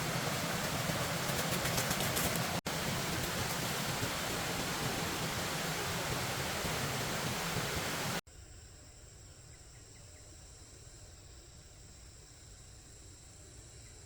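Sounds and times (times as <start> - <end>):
waterfall rushing: 0.0 - 8.2
insects droning: 0.0 - 14.0.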